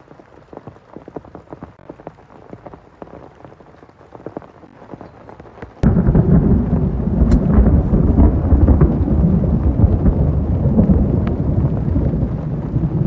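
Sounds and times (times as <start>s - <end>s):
raindrops hitting a surface: 0.0s - 13.0s
thunder rumbling: 5.8s - 13.0s.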